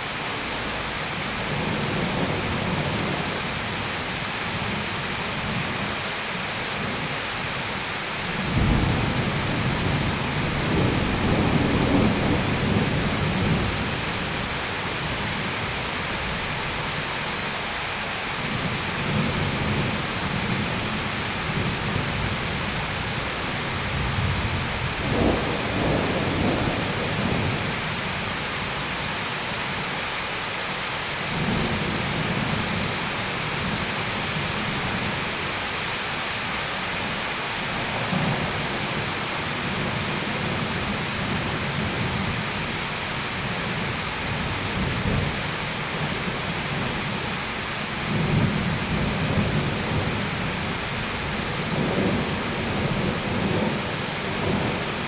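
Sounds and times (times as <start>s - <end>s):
heavy rain falling: 0.0s - 55.0s
low rolls of thunder: 8.4s - 13.9s, 23.9s - 27.7s.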